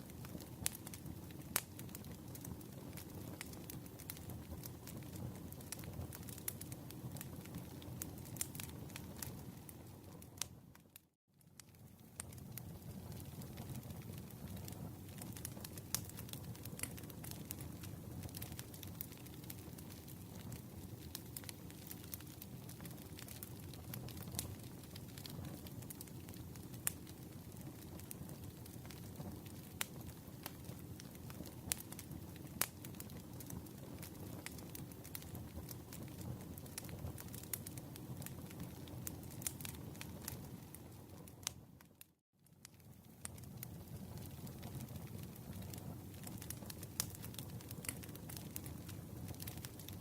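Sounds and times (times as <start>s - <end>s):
campfire rumble: 0.0s - 10.6s, 11.6s - 41.6s, 42.7s - 50.0s
fire crackles and pops: 0.0s - 50.0s.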